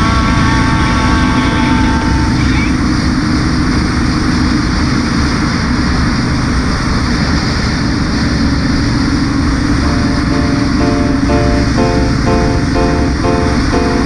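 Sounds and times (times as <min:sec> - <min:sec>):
faint music: 0:09.8 - 0:14.0.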